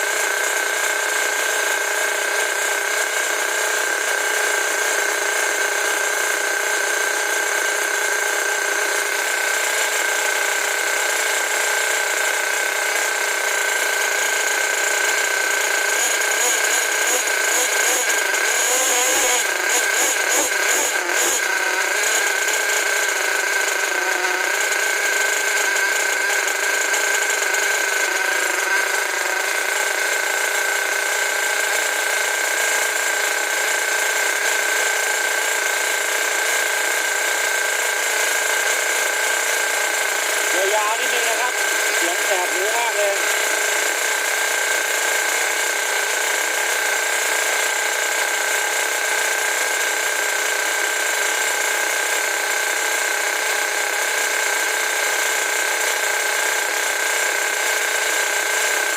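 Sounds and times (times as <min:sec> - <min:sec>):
high-speed power tool whining: 0:00.0 - 0:58.9.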